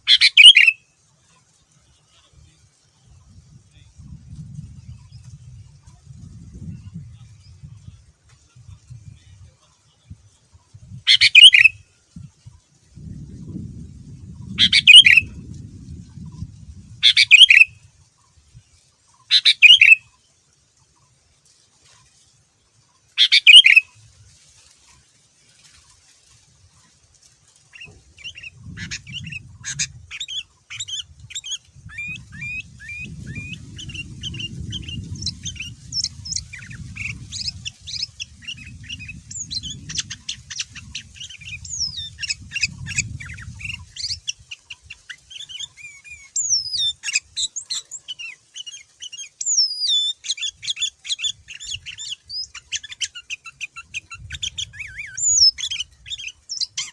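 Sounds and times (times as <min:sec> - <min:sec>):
bird singing chirps and whistles: 0:00.1 - 0:00.8, 0:11.1 - 0:11.8, 0:14.4 - 0:15.3, 0:17.0 - 0:17.7, 0:19.3 - 0:20.0, 0:23.2 - 0:23.9, 0:27.8 - 0:44.5, 0:45.1 - 0:56.9.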